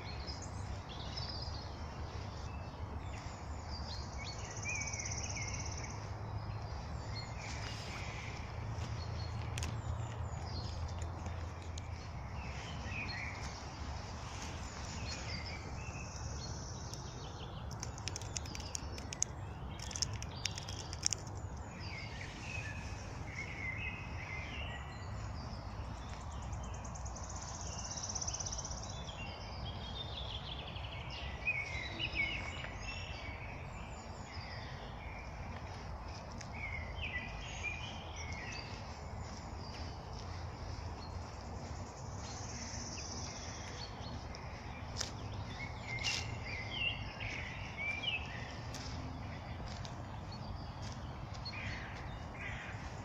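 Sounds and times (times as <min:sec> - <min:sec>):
songbirds singing and chirping: 0:00.0 - 0:53.0
sharp clicks: 0:17.6 - 0:21.6.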